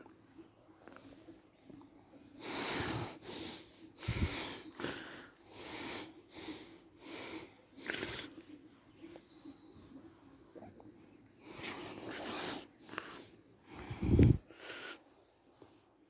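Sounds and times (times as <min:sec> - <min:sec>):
dog snorting and sniffing: 0:04.4 - 0:13.3.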